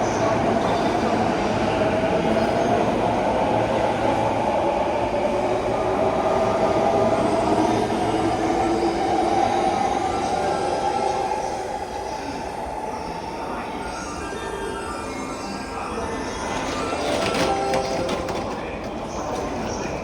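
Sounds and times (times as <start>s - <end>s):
train rumbling on rails: 0.0s - 20.0s.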